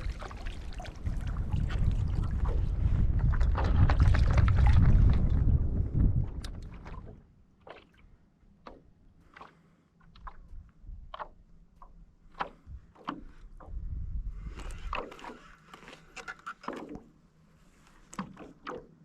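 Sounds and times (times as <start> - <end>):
wind buffeting microphone: 0.0 - 7.2, 13.6 - 15.0
water splashing against paddleboard: 6.3 - 13.8, 14.5 - 17.2, 17.8 - 19.0.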